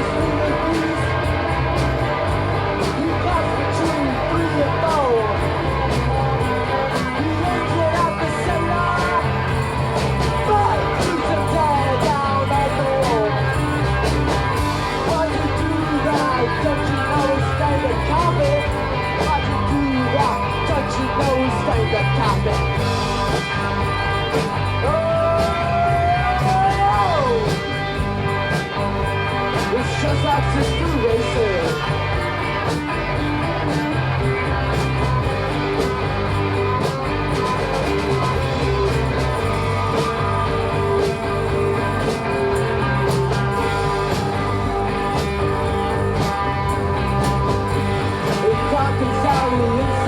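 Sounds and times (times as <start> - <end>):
bass guitar: 0.0 - 50.0
drum beat: 0.0 - 50.0
electric guitars: 0.0 - 50.0.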